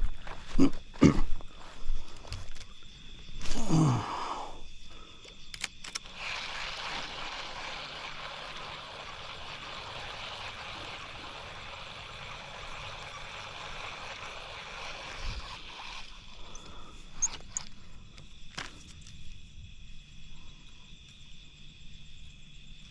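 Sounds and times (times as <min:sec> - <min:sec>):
high insect drone: 0:00.0 - 0:22.9
sharp clicks: 0:05.2 - 0:06.1.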